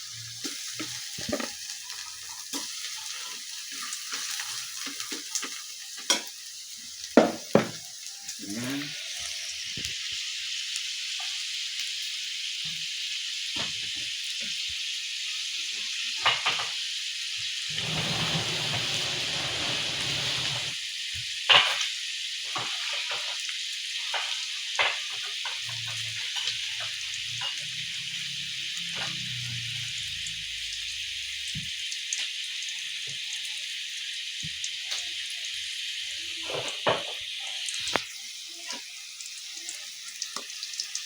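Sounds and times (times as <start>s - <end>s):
food sizzling in a pan: 0.0s - 41.0s.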